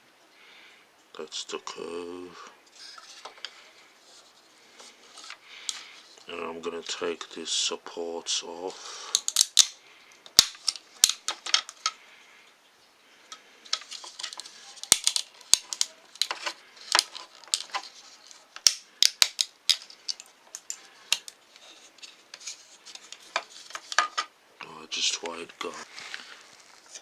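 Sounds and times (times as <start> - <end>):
plastic snapping and clicking: 9.2 - 12.0, 13.7 - 21.4.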